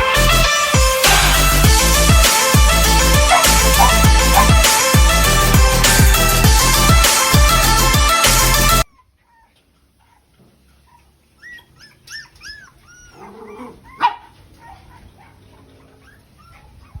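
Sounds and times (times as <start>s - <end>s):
dog whimpering and yipping: 3.3s - 4.7s, 8.9s - 17.0s.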